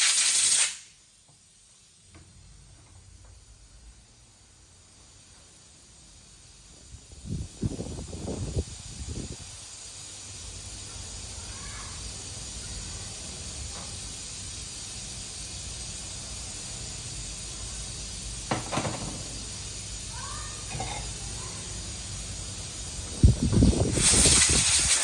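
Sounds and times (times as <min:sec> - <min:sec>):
steady hiss: 0:00.0 - 0:25.0
knocks: 0:18.5 - 0:19.3.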